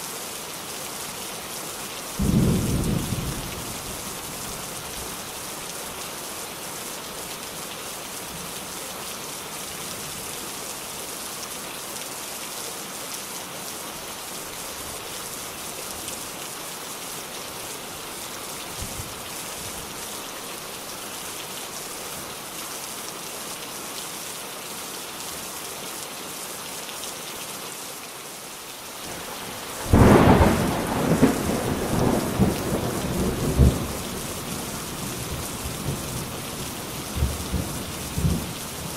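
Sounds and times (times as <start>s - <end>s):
steady rain falling: 0.0s - 38.9s
loud thunderclap rumbling: 29.8s - 34.2s.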